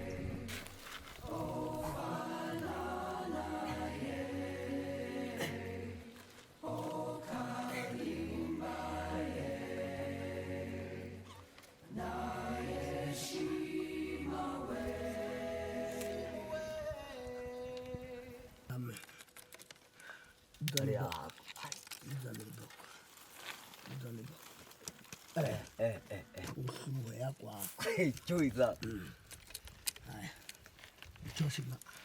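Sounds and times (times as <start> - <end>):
choir voices chanting: 0.0 - 0.6, 1.2 - 17.3
steady low drone: 0.0 - 0.6.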